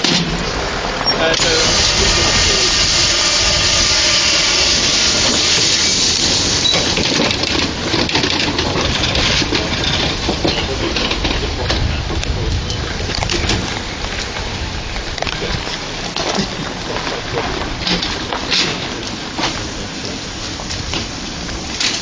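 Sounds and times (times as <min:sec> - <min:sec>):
steam hissing: 0:00.0 - 0:22.0.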